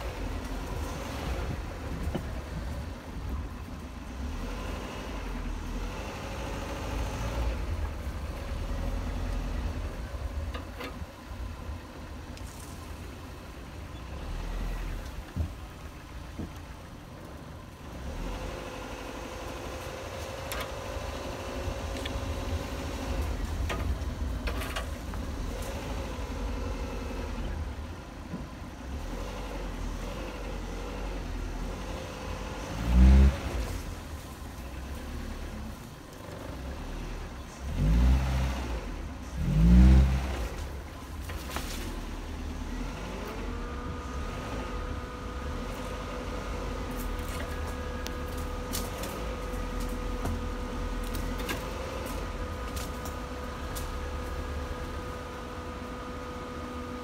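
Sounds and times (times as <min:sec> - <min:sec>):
car engine running at low revs: 0:00.0 - 0:57.0
car bumping over ground: 0:21.8 - 0:26.0.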